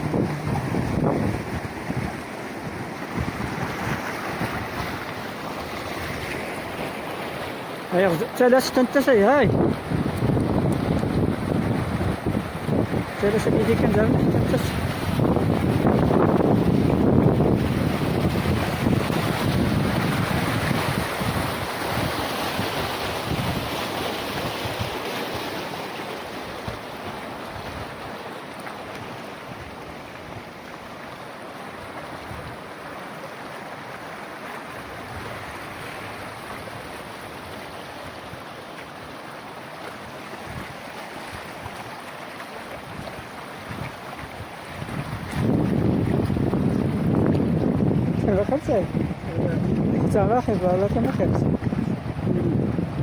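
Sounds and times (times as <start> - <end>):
wind buffeting microphone: 0.0 - 6.3, 9.1 - 25.0, 42.7 - 53.0
floodwater rushing: 0.0 - 53.0.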